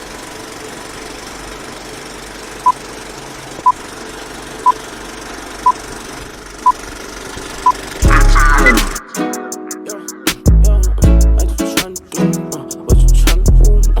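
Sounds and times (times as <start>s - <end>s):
engine running: 0.0s - 9.1s
short loud beeps: 7.6s - 9.1s.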